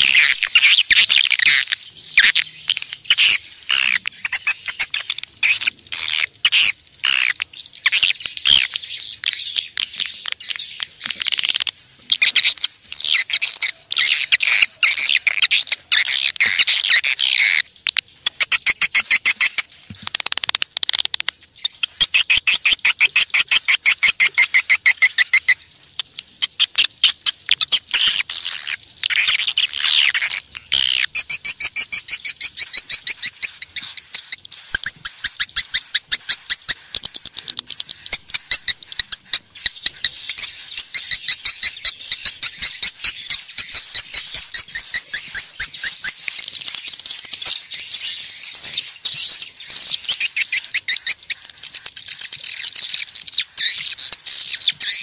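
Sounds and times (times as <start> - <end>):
swiftlets twittering: 0.0 - 55.0.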